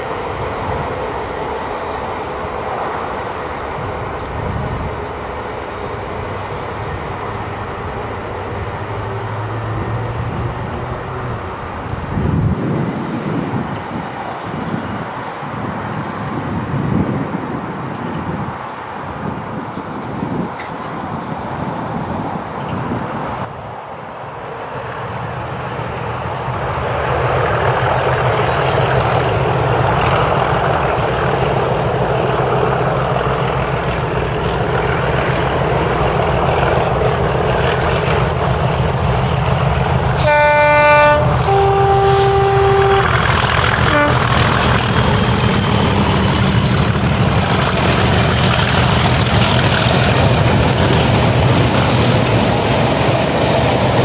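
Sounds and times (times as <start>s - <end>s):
diesel locomotive engines: 0.0s - 54.0s
two-tone train horn: 25.0s - 45.7s.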